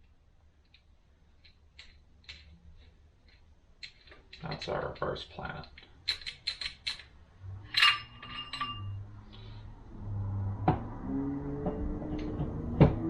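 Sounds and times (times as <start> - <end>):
metal parts clinking on workbench: 3.2 - 9.0.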